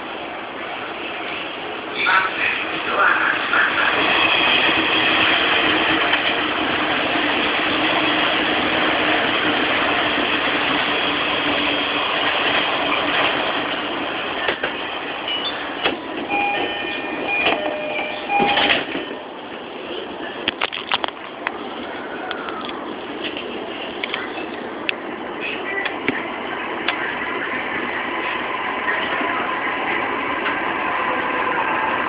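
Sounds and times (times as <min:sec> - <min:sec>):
train noise inside car: 0:00.0 - 0:32.0
short beeping tones: 0:16.3 - 0:19.0.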